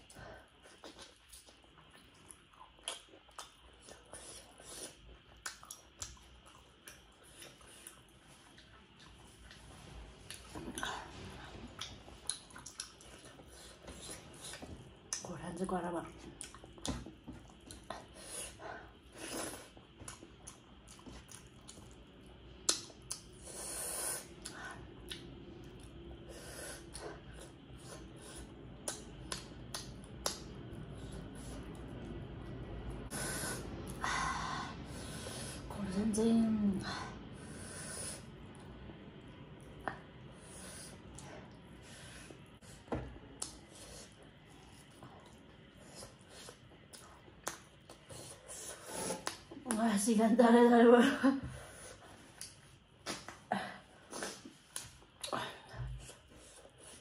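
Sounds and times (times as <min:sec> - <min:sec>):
person chewing food: 0:00.0 - 0:15.3, 0:16.1 - 0:32.6, 0:38.2 - 0:49.7
mouth smacks and clicks: 0:22.6 - 0:23.3.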